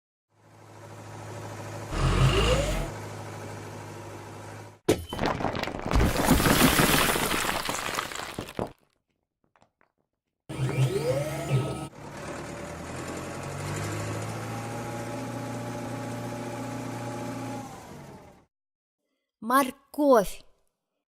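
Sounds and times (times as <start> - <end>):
engine-like hum: 0.3 - 4.8, 10.5 - 18.5.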